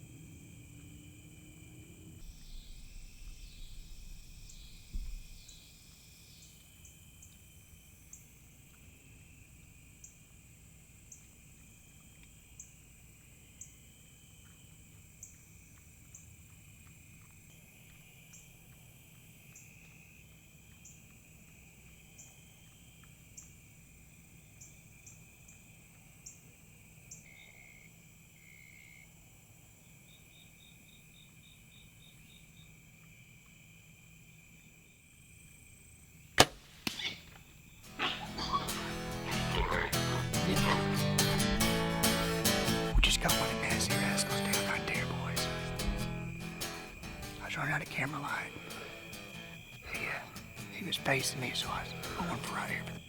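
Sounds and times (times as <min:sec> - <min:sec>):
insects trilling: 0:00.0 - 0:53.0
small thud: 0:36.4 - 0:37.4
bow shot crack: 0:36.4 - 0:38.3.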